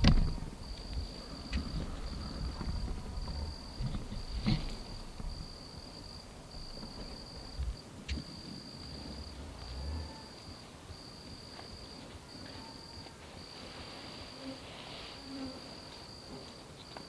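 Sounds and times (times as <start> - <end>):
low rumble: 0.0 - 7.8
insect trilling: 0.0 - 8.4.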